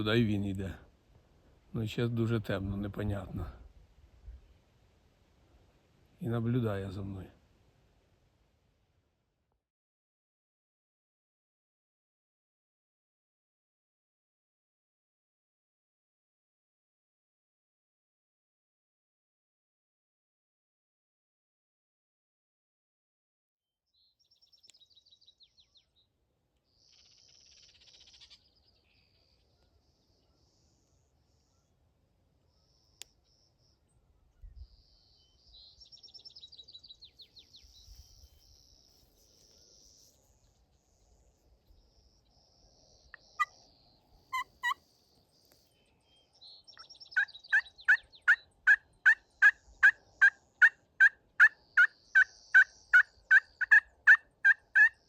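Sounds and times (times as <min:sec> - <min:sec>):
faint high bird trills: 0:26.8 - 0:29.3, 0:44.3 - 0:44.8.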